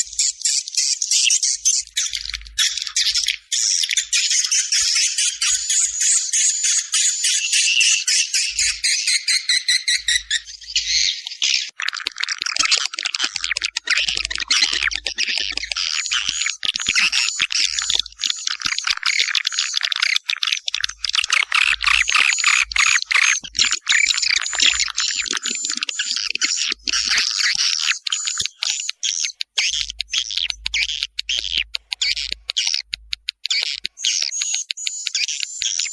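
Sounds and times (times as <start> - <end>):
swiftlets twittering: 22.0 - 29.6.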